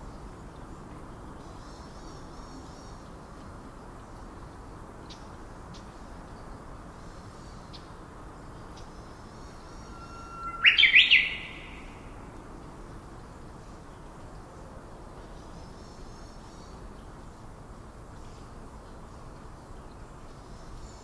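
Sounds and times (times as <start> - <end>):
faint bird chirping: 4.1 - 12.3
bird whistling call: 9.7 - 12.1.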